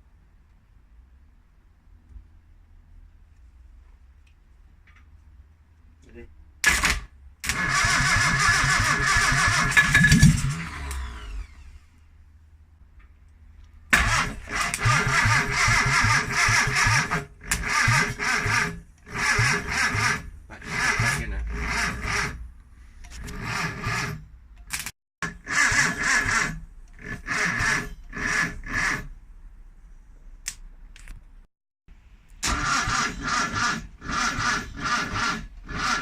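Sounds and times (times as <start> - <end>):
car engine cranking: 7.4 - 11.6, 13.9 - 22.4, 25.5 - 29.1, 32.4 - 36.0.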